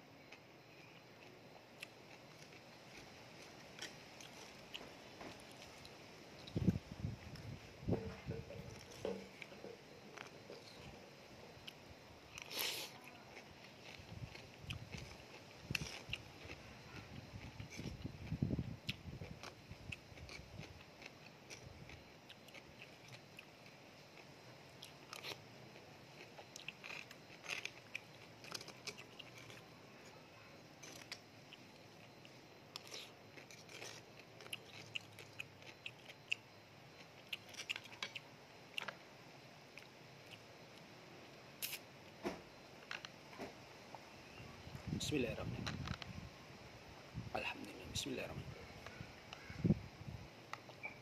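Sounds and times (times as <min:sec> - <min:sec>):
wet chewing clicks and crunches: 0:00.3 - 0:10.9, 0:11.5 - 0:30.2, 0:30.8 - 0:39.0, 0:41.6 - 0:41.8.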